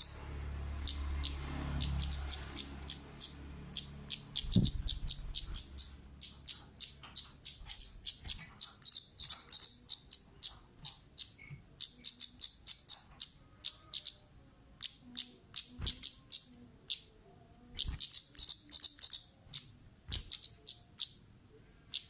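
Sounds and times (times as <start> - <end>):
low hum: 0.0 - 6.8
bird chip calls: 0.8 - 17.1, 17.8 - 21.3.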